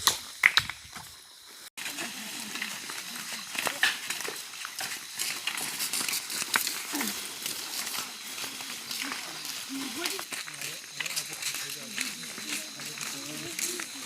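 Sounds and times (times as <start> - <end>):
stones clattering: 0.0 - 1.1
people talking: 1.8 - 4.4, 6.8 - 14.0.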